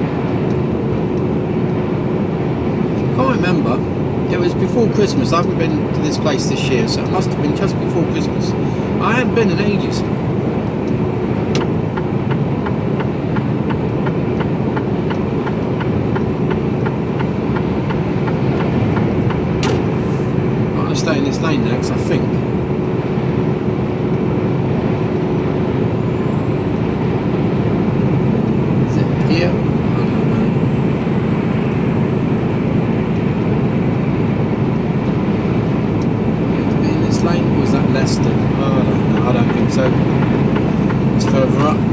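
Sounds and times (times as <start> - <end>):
diesel engine and road drone: 0.0 - 41.9
turn indicator ticking: 10.8 - 20.0, 35.9 - 41.9.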